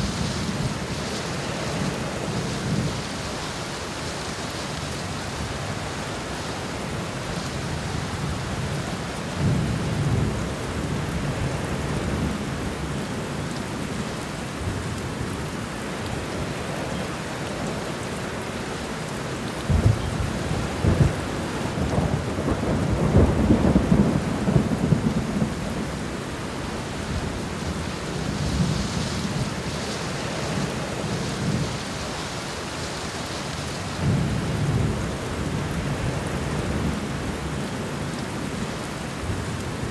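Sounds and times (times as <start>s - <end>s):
steady rain: 0.0s - 39.9s
rolling thunder: 19.7s - 26.1s.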